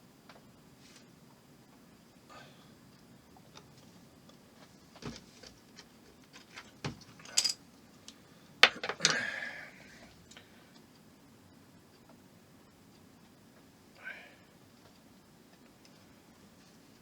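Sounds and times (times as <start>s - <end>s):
plastic parts clicking and tapping: 8.6s - 9.2s.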